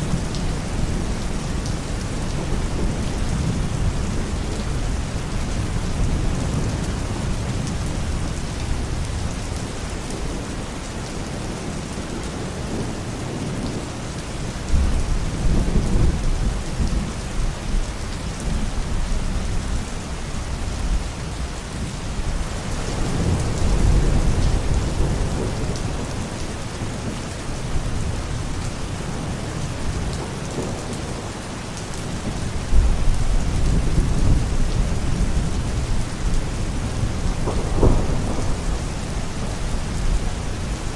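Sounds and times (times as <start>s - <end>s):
steady rain falling: 0.0s - 40.9s
deep thunder rumbling: 32.2s - 40.9s.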